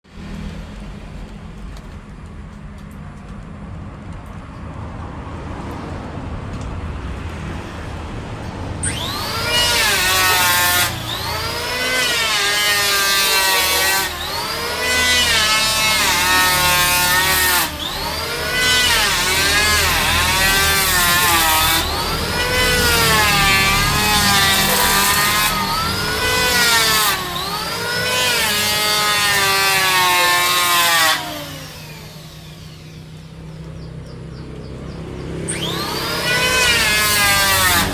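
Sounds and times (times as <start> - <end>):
power tool motor whine: 8.8 - 33.8, 35.3 - 37.9
rough wood cutting noise: 8.8 - 37.9.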